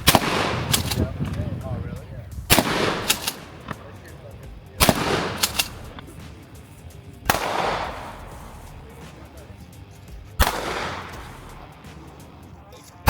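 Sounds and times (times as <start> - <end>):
sharp clicks: 0.0 - 1.6, 2.3 - 4.2, 4.8 - 8.4
rifle shots echoing: 0.0 - 12.7.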